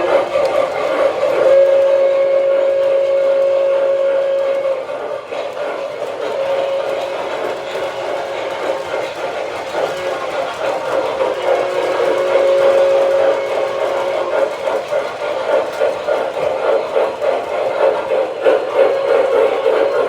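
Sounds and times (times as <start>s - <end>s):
steam locomotive chuffing: 0.0s - 20.0s
train rumbling on track: 0.0s - 20.0s
two-tone steam whistle: 0.0s - 20.0s.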